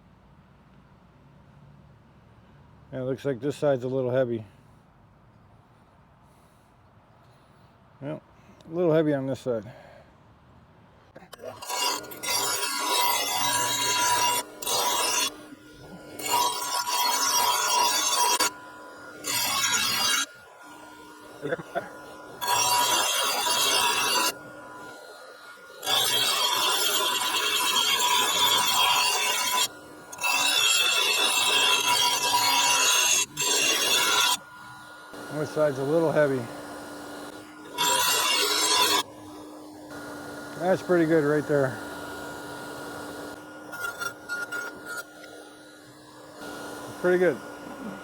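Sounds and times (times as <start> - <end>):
mower blade being ground: 11.2 - 48.0
metal rasping on metal: 11.3 - 48.0.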